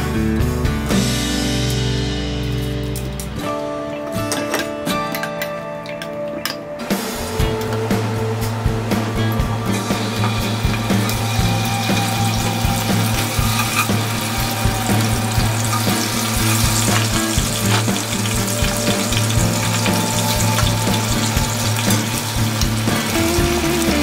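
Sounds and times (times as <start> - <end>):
fish deep-frying in hot oil: 9.6 - 24.0.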